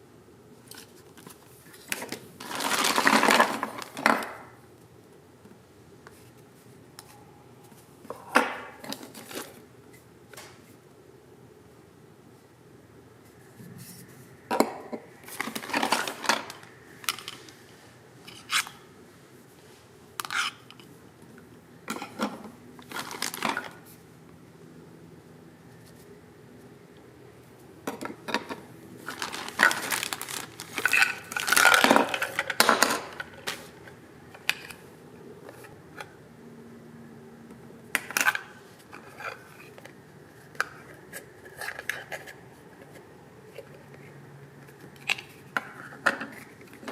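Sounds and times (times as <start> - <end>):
plastic toy pieces clattering: 2.4 - 4.4, 15.3 - 17.4, 22.9 - 23.8, 28.3 - 33.4.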